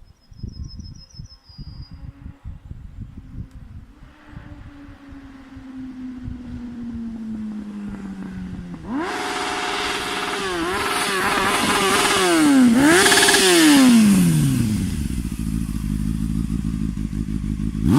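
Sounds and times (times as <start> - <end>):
motorcycle engine revving: 3.2 - 17.9.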